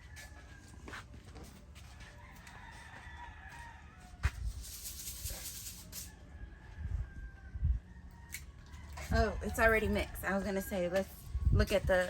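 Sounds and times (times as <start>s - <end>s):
rooster crowing: 0.0s - 1.0s, 1.8s - 4.4s, 6.0s - 11.2s
high hissing rattle: 4.6s - 6.1s.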